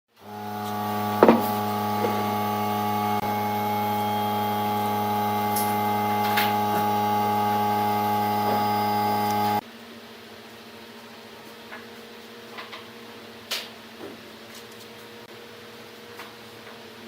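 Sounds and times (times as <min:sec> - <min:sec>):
lathe motor humming: 0:00.2 - 0:09.6
sharp knock: 0:01.2 - 0:01.5.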